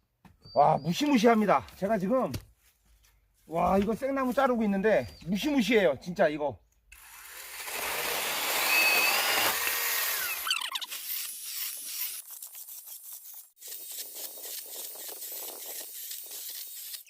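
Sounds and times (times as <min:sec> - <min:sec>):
chainsaw cutting wood: 0:07.0 - 0:12.2.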